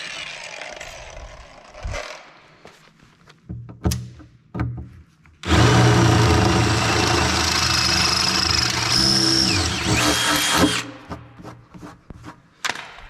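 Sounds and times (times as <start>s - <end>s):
power tool running on metal: 5.4s - 10.9s.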